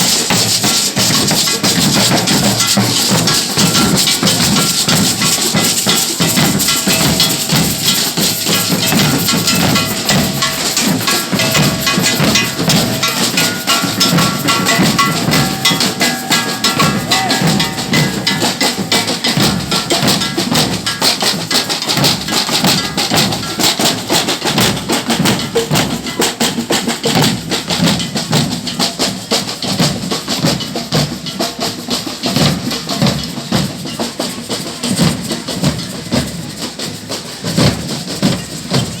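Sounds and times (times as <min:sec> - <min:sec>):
melody over drums: 0:00.0 - 0:28.8
fast drumming: 0:00.0 - 0:39.0.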